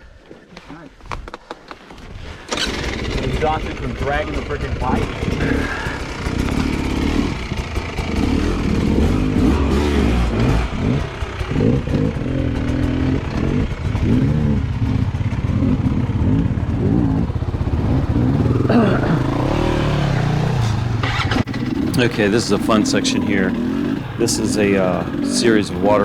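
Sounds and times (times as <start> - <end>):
dirt bike engine revving: 2.4 - 26.0.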